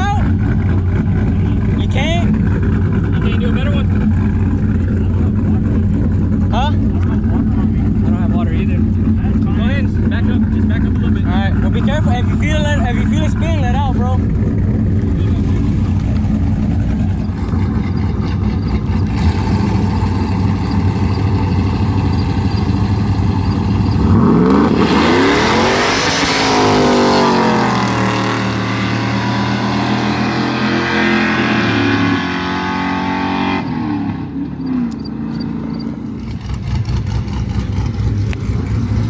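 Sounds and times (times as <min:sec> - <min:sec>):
car engine revving: 0:00.0 - 0:39.0
tyres spinning: 0:17.0 - 0:28.0.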